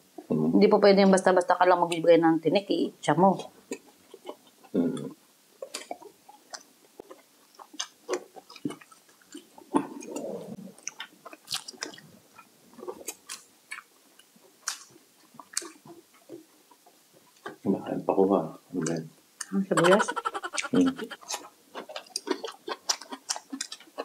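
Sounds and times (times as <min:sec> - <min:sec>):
chewing and wet mouth noises: 0:03.7 - 0:17.6, 0:18.8 - 0:24.0.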